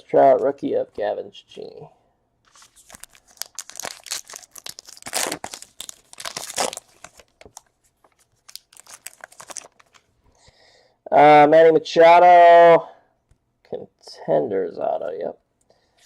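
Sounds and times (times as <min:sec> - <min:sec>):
wrapper tearing and crinkling: 0:02.5 - 0:10.1.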